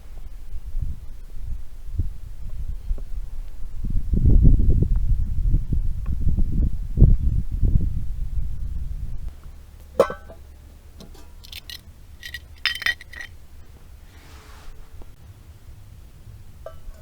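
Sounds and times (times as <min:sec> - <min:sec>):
metal cookware clinking: 0:11.4 - 0:13.3
metal scrape: 0:11.4 - 0:13.3.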